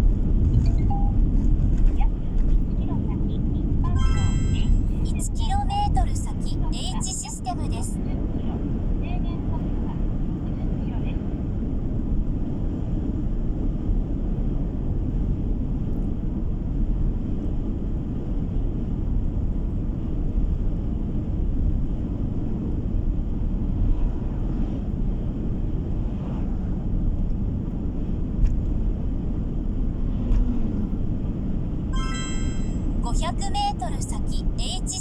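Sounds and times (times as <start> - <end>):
car road rumble from inside: 0.0 - 3.9, 24.2 - 31.9.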